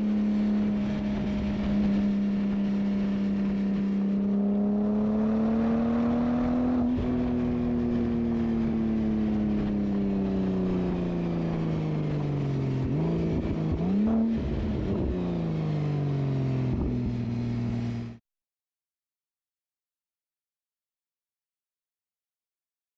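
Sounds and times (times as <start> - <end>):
sports car engine revving: 0.7 - 7.9, 12.8 - 15.6.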